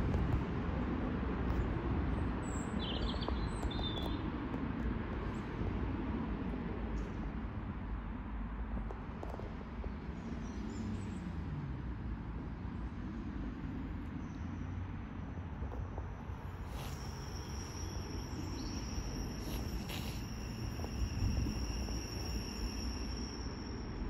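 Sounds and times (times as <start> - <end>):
small bird chirping: 16.7 - 23.2.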